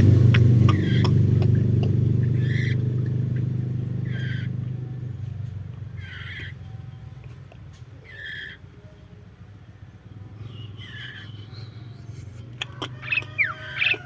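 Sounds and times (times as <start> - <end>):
steady low hum: 0.0 - 8.6
harsh bird calls: 0.0 - 9.0, 10.0 - 14.0.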